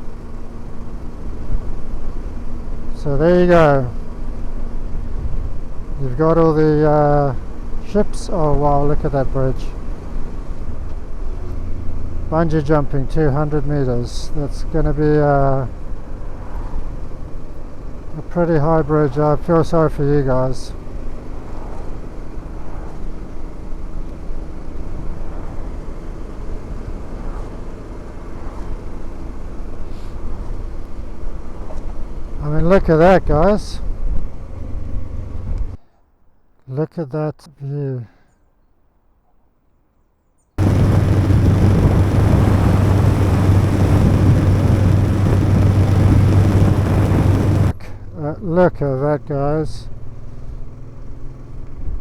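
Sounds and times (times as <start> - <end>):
motorcycle engine drone: 0.0 - 35.8, 40.6 - 47.8
motorcycle engine cruising: 20.0 - 32.5, 40.6 - 47.8
wind rushing over microphone: 40.6 - 47.8.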